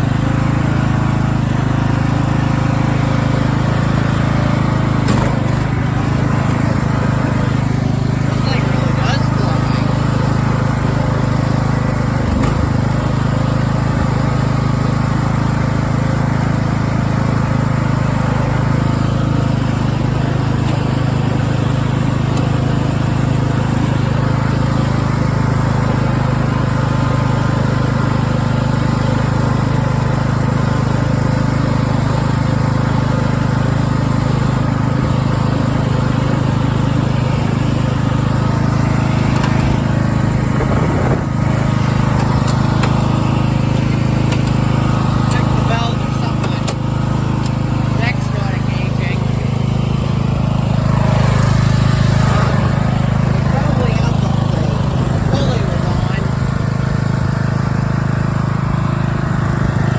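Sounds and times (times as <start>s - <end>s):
riding mower engine droning: 0.0s - 59.9s.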